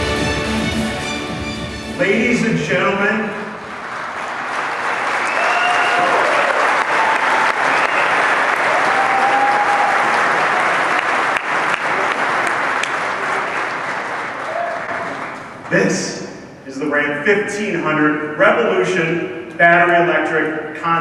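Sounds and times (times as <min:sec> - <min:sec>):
audience cheering: 0:02.0 - 0:16.0
audience applauding: 0:02.1 - 0:16.0.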